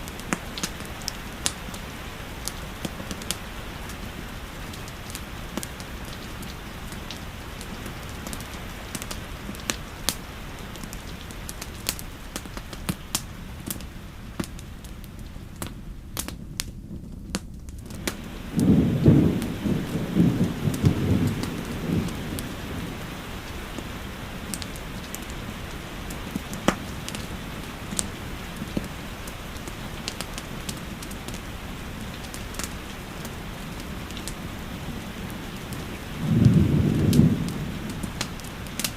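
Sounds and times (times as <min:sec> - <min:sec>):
steady rain: 0:00.0 - 0:38.9
wood fire crackling: 0:00.0 - 0:38.9
low rumble of thunder: 0:15.8 - 0:38.9.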